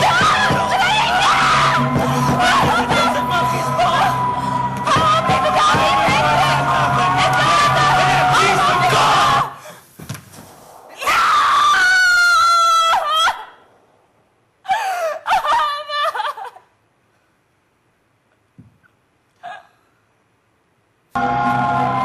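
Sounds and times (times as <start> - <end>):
woman screaming: 0.0 - 4.2, 11.0 - 13.6, 14.7 - 16.6.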